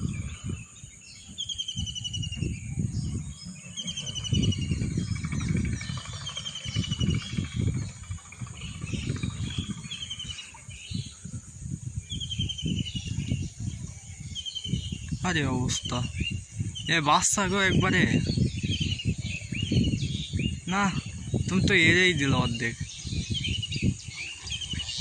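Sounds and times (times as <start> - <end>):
bird trilling: 1.2 - 11.3.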